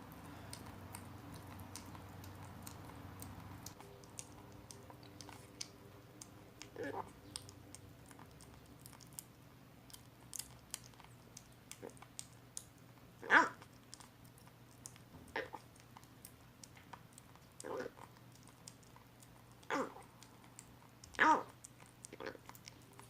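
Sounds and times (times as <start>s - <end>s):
kitten eating clicks: 0.0s - 23.0s
kitten mewing: 13.2s - 13.6s, 19.6s - 20.1s, 21.1s - 21.6s.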